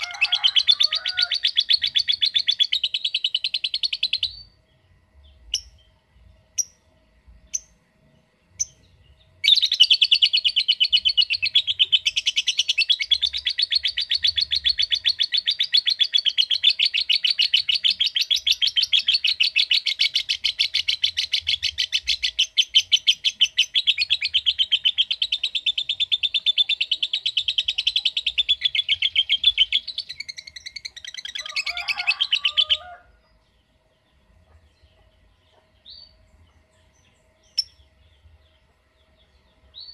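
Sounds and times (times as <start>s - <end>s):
lovebird chattering trill: 0.0s - 4.6s, 5.4s - 5.9s, 8.6s - 32.9s
lovebird chirps: 5.2s - 6.0s, 8.6s - 32.8s.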